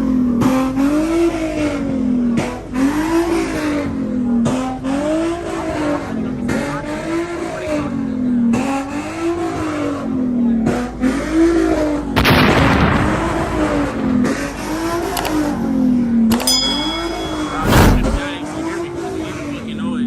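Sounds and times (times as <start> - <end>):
car engine at high revs: 0.0 - 20.0
tire squeal: 0.5 - 12.0.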